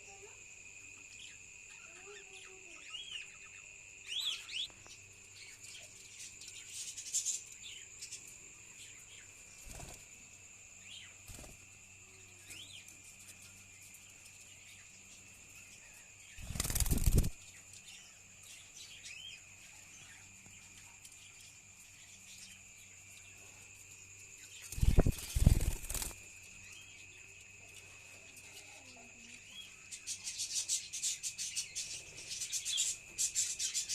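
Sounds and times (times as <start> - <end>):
bird wings flapping: 9.6 - 10.1, 11.3 - 11.6, 16.4 - 17.4, 24.7 - 26.2.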